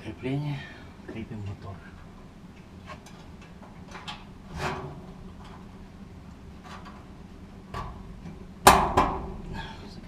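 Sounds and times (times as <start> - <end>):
scraping metal clunk: 2.9 - 5.8.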